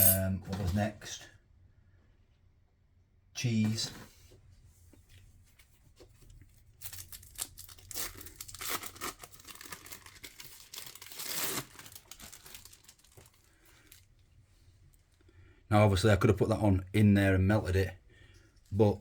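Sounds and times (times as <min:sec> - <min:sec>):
plastic wrapping crinkling and tearing: 0:06.2 - 0:14.1.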